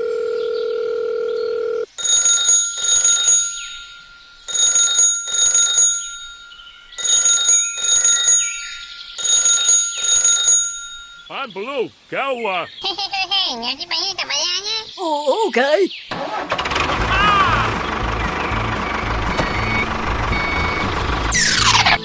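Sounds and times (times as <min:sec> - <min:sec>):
old telephone bell ringing: 0:01.6 - 0:11.4.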